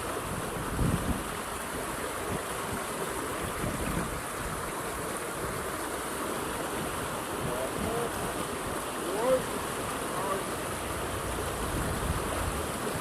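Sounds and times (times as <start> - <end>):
rushing flood water: 0.0 - 13.0
wind buffeting microphone: 0.2 - 1.4, 2.3 - 4.6, 11.6 - 13.0.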